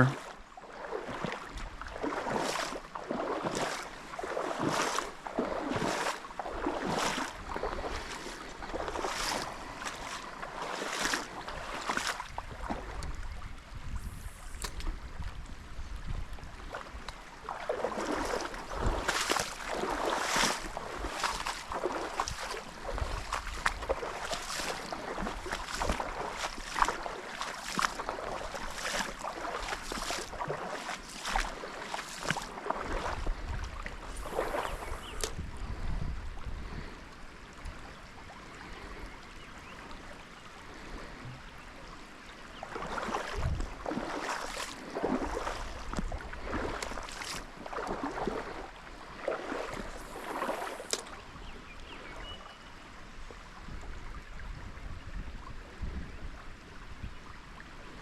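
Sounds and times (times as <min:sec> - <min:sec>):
water sloshing from wading: 0:00.0 - 0:52.6
stream flowing: 0:00.0 - 0:55.6
wind rumble on microphone: 0:04.2 - 0:27.1, 0:32.2 - 0:38.0, 0:42.7 - 0:52.5, 0:53.2 - 0:58.0.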